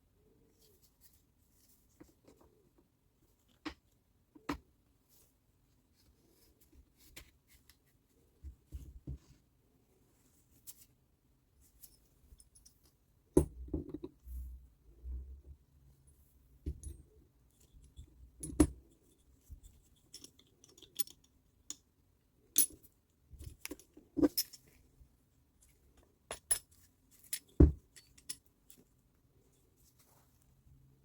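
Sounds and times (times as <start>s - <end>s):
metal parts and tools clinking: 19.7s - 21.4s, 22.5s - 24.8s, 25.6s - 28.8s.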